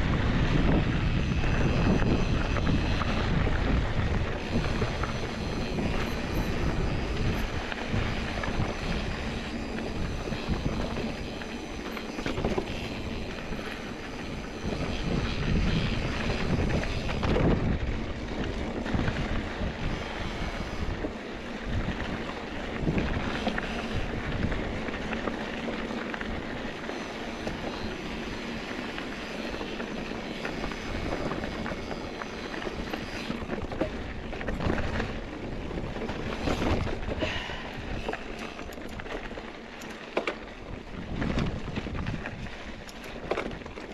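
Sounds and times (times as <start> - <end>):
bike tyres rumbling on dirt: 0.0 - 43.9
wind rushing on microphone: 0.0 - 43.9
bike knocks and rattles: 38.1 - 43.9.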